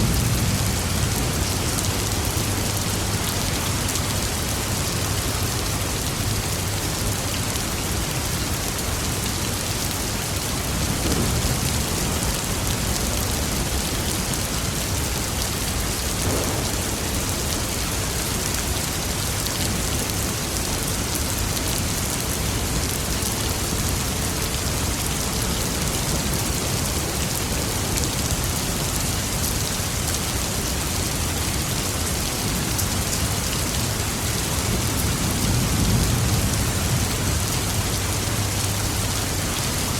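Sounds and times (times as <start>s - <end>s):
distant thunder rumbling: 0.0s - 3.7s, 10.6s - 19.2s
heavy rain pattering: 0.0s - 39.9s.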